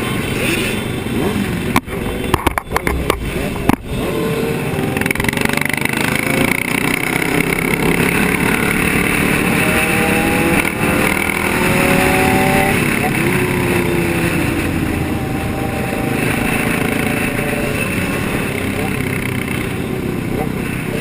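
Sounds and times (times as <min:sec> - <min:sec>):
vehicle engines running: 0:00.0 - 0:21.0
abrupt clicks: 0:01.7 - 0:03.9.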